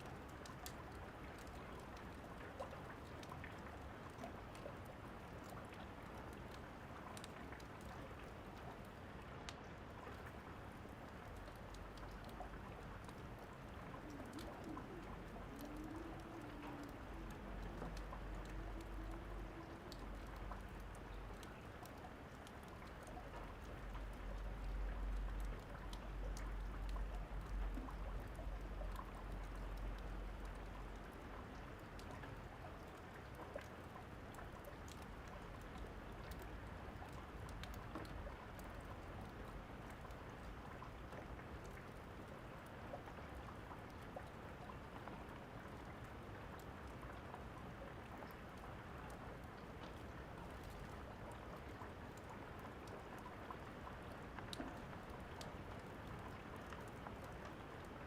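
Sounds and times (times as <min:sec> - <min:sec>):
light crackles: 0:00.0 - 0:58.0
steady rain: 0:00.0 - 0:58.0.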